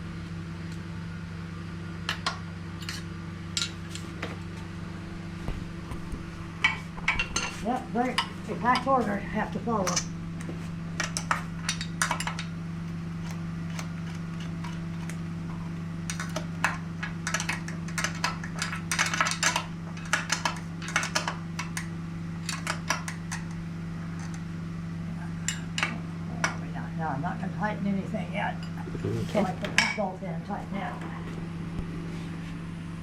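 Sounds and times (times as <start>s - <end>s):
low electrical hum: 0.0s - 33.0s
metal tools clinking: 2.8s - 4.1s, 6.6s - 10.1s, 11.0s - 12.5s.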